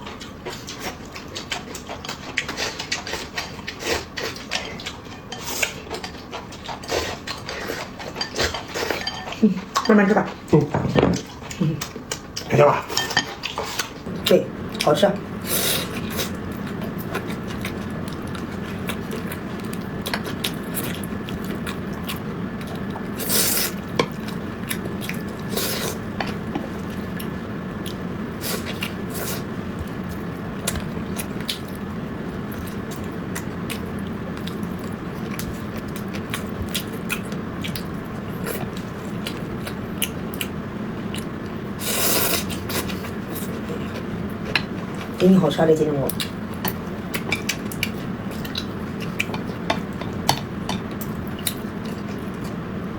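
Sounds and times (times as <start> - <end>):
wet chewing: 0.0 - 10.6, 11.2 - 45.4, 46.0 - 52.6
steady low hum: 0.0 - 52.9
utensils clinking on dishes: 8.0 - 10.1, 12.9 - 13.5.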